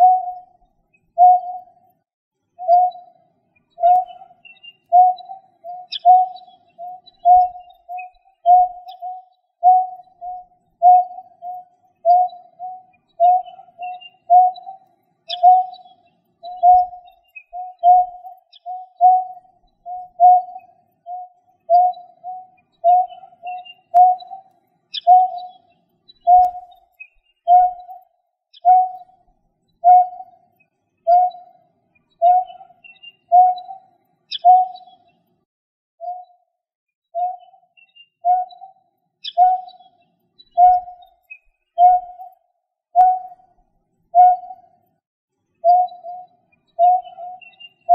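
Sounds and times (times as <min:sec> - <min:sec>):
bird low hooting notes: 0:00.0 - 0:00.5, 0:03.8 - 0:25.5, 0:32.2 - 0:34.9, 0:45.6 - 0:47.9
faint high bird chirps: 0:00.0 - 0:35.4, 0:36.0 - 0:45.0, 0:45.6 - 0:47.9.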